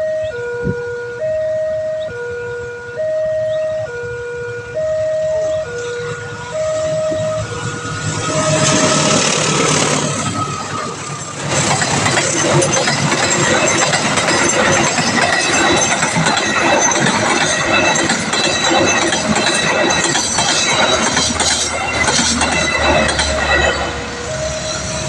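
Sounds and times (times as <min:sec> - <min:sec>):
level crossing two-tone alarm: 0:02.9 - 0:11.4, 0:12.4 - 0:25.0
train passing with wheel clatter: 0:05.3 - 0:25.0.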